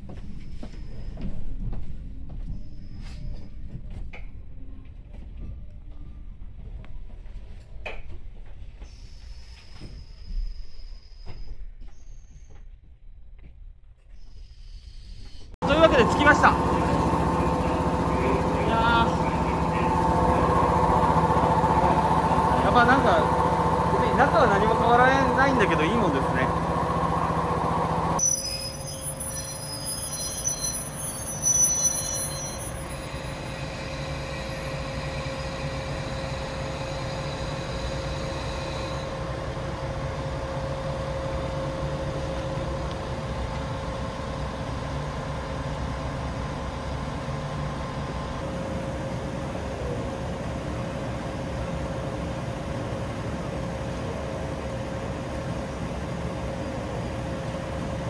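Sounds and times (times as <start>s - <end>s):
train equipment humming: 14.2s - 58.0s.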